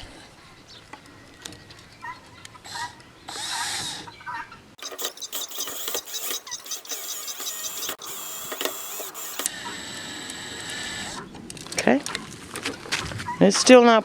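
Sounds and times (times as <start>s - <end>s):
power drill driving screws: 4.8s - 9.6s.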